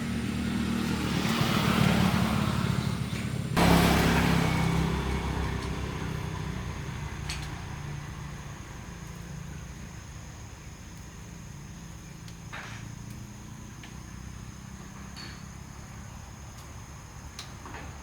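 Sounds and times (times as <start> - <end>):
motorcycle engine running: 0.0 - 8.7.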